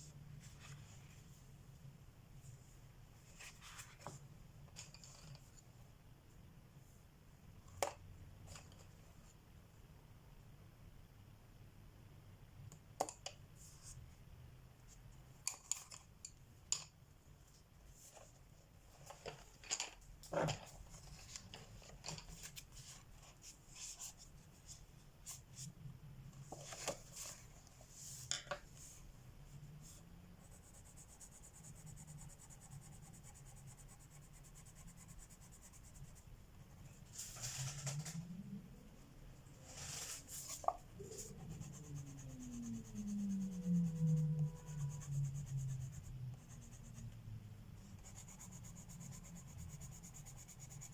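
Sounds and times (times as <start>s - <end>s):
pencil shading on paper: 48.0s - 50.9s.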